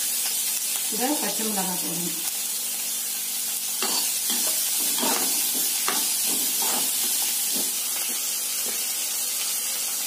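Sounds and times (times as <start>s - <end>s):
onions sizzling in hot oil: 0.0s - 10.0s
steel spatula scraping pan: 3.8s - 7.8s.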